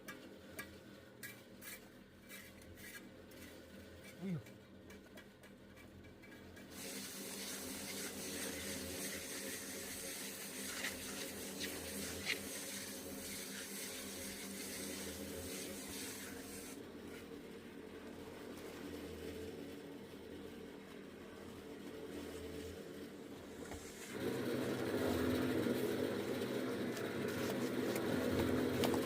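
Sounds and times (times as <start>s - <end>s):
water pouring with hiss: 6.7s - 16.8s.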